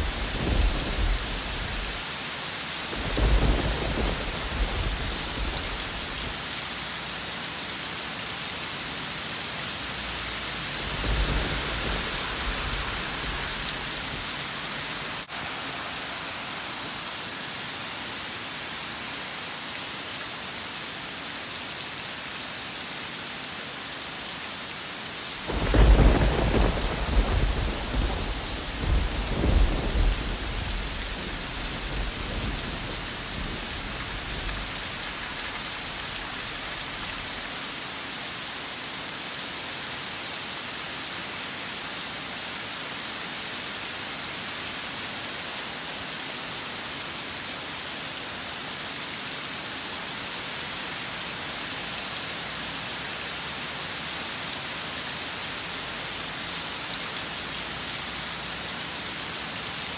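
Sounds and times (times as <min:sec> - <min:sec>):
rolling thunder: 0:00.0 - 0:02.0, 0:02.9 - 0:06.4, 0:10.7 - 0:14.4, 0:25.4 - 0:37.5
steady rain hiss: 0:00.0 - 0:59.9.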